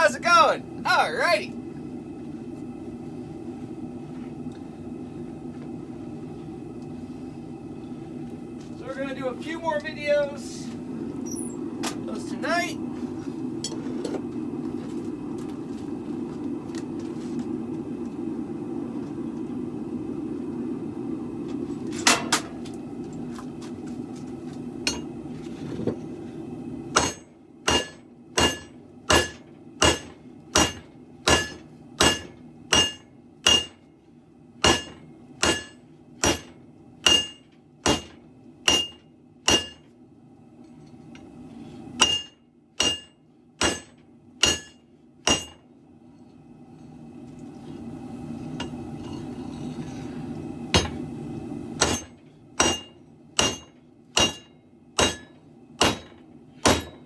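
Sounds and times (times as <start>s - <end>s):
hammer striking metal blade: 27.0s - 33.8s, 34.6s - 39.8s, 42.0s - 45.6s, 51.8s - 57.0s.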